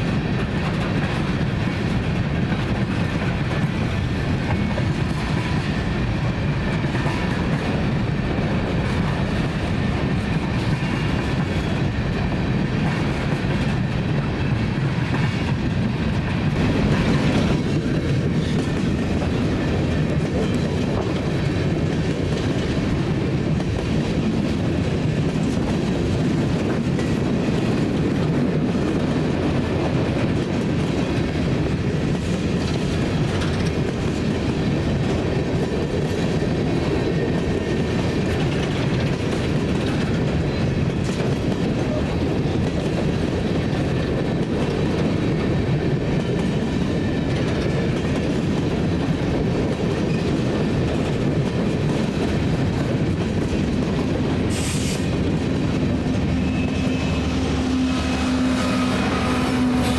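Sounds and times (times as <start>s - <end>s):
diesel locomotive engine drone: 0.0s - 59.9s
steel wheels rumbling on rail: 0.0s - 59.9s.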